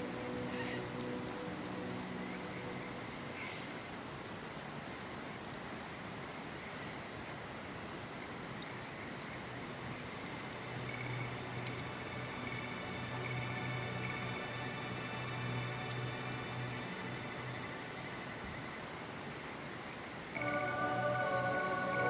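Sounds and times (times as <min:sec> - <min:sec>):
river rushing: 0:20.4 - 0:22.0.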